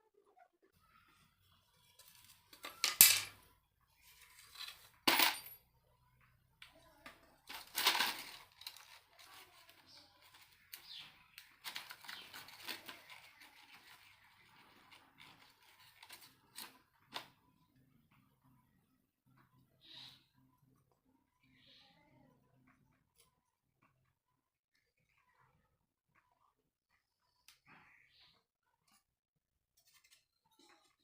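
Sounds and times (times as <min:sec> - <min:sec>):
small hard objects clinking: 0:07.4 - 0:14.0.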